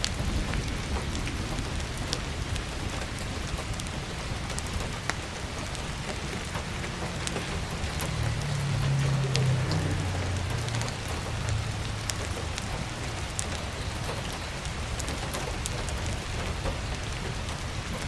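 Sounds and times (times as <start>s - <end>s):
low rumble: 0.0s - 14.1s
heavy rain: 0.0s - 18.0s
wood fire crackling: 0.0s - 18.0s.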